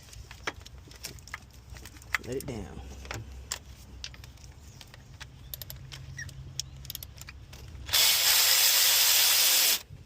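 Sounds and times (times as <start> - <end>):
loud steady hiss: 7.9 - 9.9.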